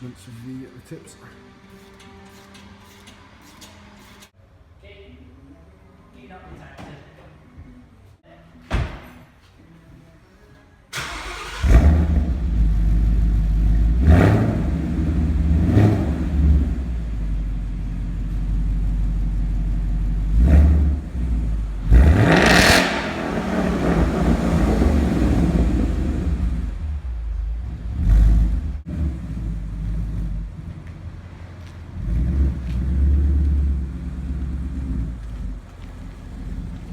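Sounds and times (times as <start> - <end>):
car engine starting: 10.9 - 36.9
car engine idling and revving: 11.0 - 36.9.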